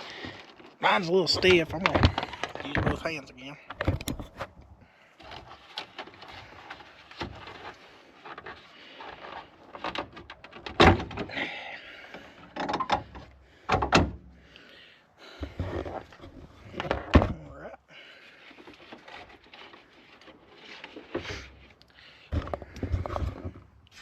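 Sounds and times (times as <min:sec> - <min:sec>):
plastic clicks and knocks: 0:03.7 - 0:04.7.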